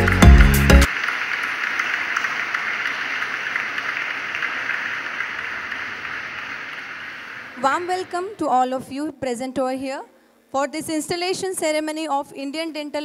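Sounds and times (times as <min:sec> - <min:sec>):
music: 0:00.0 - 0:00.9
crowd applauding: 0:00.0 - 0:08.4.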